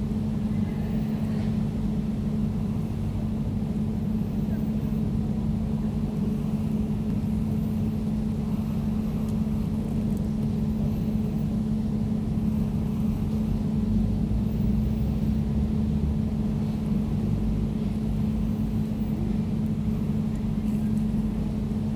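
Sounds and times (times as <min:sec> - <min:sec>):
air conditioner humming: 0:00.0 - 0:21.9.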